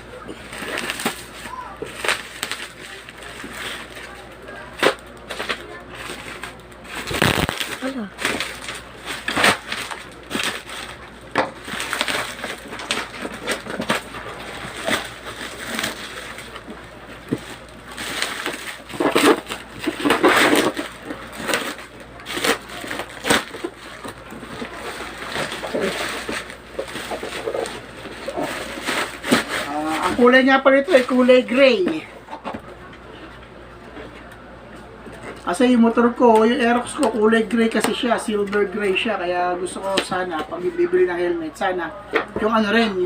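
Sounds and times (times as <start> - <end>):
packaging crinkling and rustling: 0.3 - 32.7.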